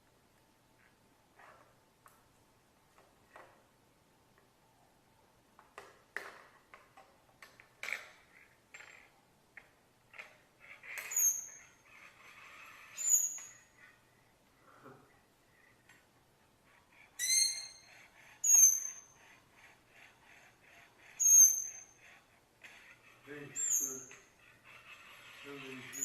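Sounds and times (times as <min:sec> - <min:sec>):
parrot high whistles: 0:17.2 - 0:19.1.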